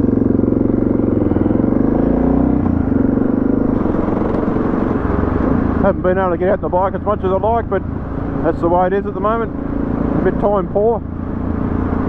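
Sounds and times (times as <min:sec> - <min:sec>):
motorcycle engine pulling away: 0:00.0 - 0:06.0.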